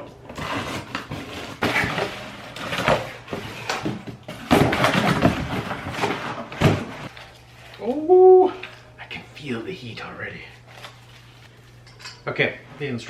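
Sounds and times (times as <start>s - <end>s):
cardboard scraping and rustling: 0.3s - 7.1s.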